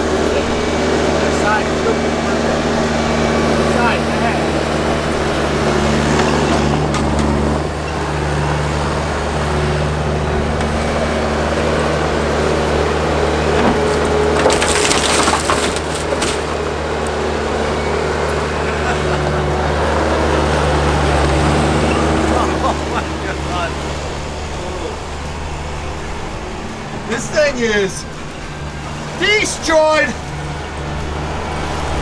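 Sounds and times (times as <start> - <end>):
loader engine running: 0.0 - 32.0
car body crunching: 11.9 - 25.0.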